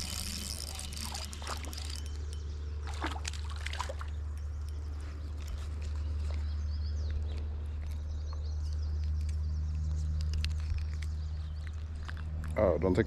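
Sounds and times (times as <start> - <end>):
water splashing and trickling: 0.0 - 6.4.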